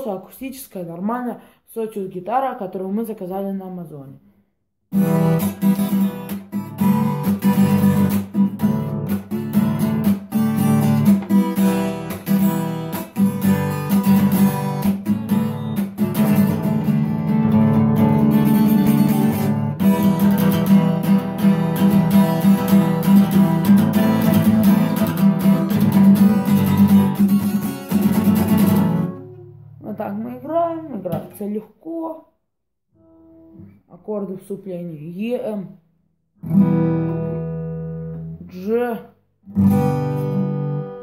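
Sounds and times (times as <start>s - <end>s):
acoustic guitar strummed rhythmically: 4.9s - 31.4s, 36.4s - 41.0s.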